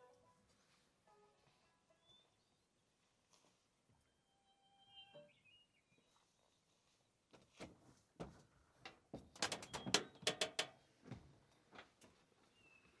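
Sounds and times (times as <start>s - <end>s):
sharp clicks and knocks: 9.4s - 10.8s.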